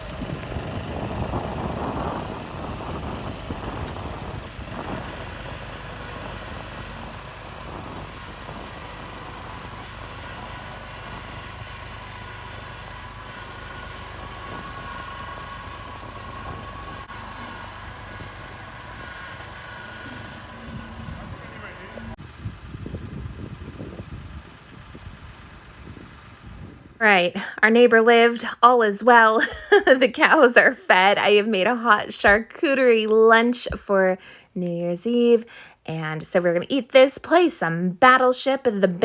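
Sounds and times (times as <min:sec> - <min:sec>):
faint steady whine: 0:00.0 - 0:24.3
tractor engine running: 0:00.0 - 0:34.4.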